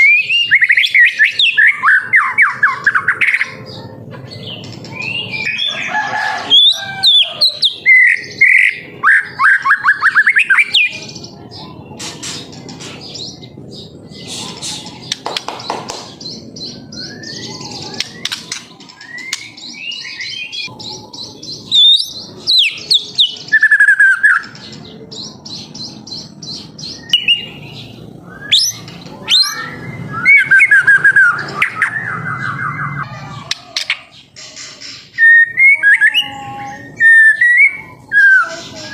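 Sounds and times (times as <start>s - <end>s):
bird singing whistles: 21.7s - 24.4s, 27.0s - 33.1s, 35.2s - 38.9s.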